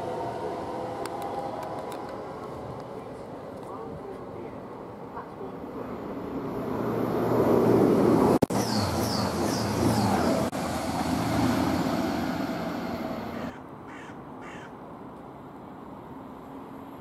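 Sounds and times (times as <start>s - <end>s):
diesel train engine and wheels: 0.0s - 17.0s
crow cawing: 13.4s - 14.8s.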